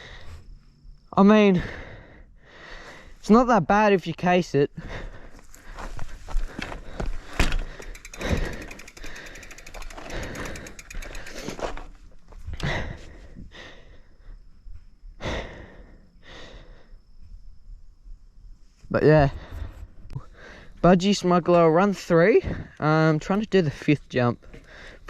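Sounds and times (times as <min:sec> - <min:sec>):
wheels thudding on dirt: 0:05.7 - 0:12.7
bicycle freewheel ticking: 0:07.4 - 0:11.9.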